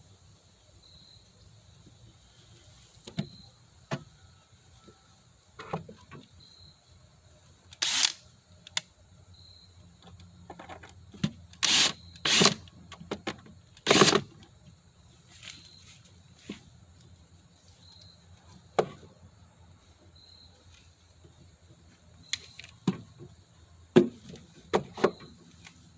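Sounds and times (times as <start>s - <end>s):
knocks and clicks of wood and tools: 10.0s - 14.4s, 18.8s - 19.1s, 22.3s - 23.3s, 23.9s - 25.4s
hand tool scraping wood: 13.9s - 14.2s.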